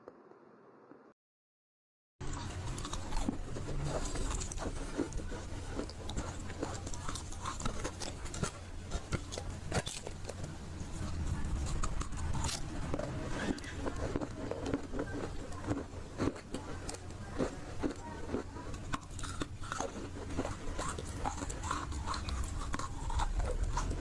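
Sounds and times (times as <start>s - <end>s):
crunchy chewing: 2.2s - 24.0s.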